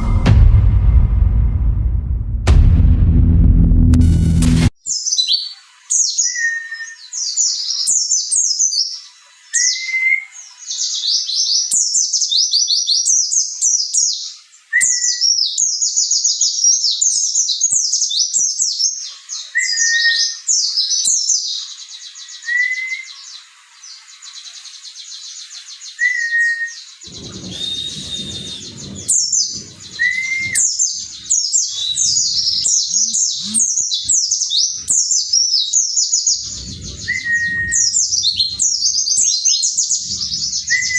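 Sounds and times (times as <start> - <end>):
low whistled bird notes: 0.0 - 1.1, 25.7 - 40.9
brief low rumble: 0.0 - 4.7, 27.1 - 30.6, 36.4 - 38.8
bird twittering song: 4.8 - 40.9.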